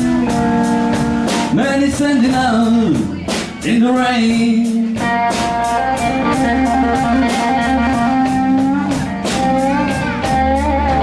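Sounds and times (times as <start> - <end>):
bass: 0.0 - 11.0
drum beat: 0.0 - 11.0
electric guitar fill: 0.0 - 11.0.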